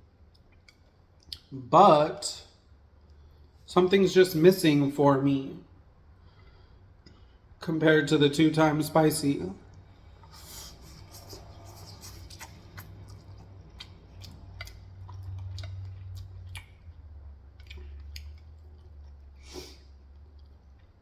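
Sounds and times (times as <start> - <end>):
crunchy chewing: 9.8 - 21.0.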